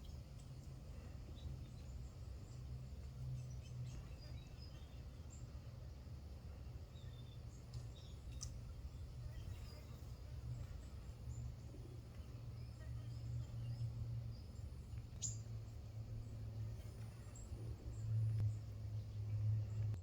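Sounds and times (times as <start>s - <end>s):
steady low hum: 0.0s - 20.0s
songbird high calls: 6.9s - 15.5s.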